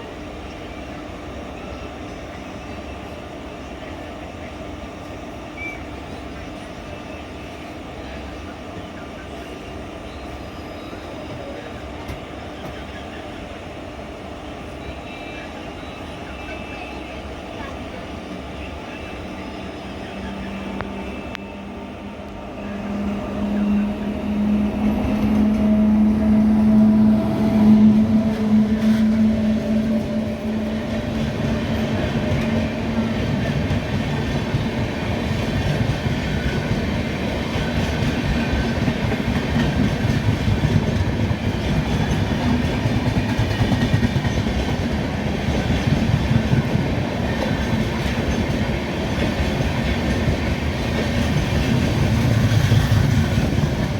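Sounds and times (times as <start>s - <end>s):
locomotive hum: 0.0s - 53.9s
clickety-clack of wheels on rails: 10.0s - 13.3s, 22.3s - 53.9s.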